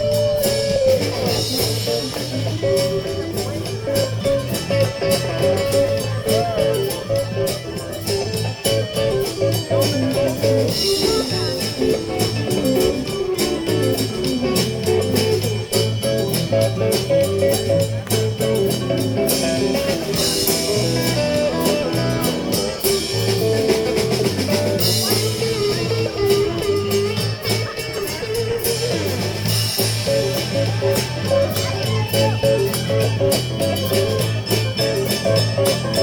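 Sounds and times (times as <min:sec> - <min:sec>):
bass line: 0:00.0 - 0:36.0
drum kit: 0:00.0 - 0:36.0
lead guitar: 0:00.0 - 0:36.0.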